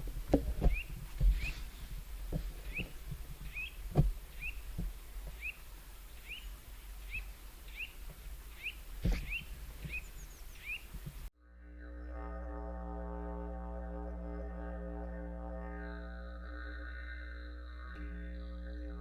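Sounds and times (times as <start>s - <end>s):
low outdoor rumble: 0.0s - 19.0s
small bird chirping: 0.6s - 2.0s, 2.6s - 11.3s
dull knocks: 2.3s - 5.4s.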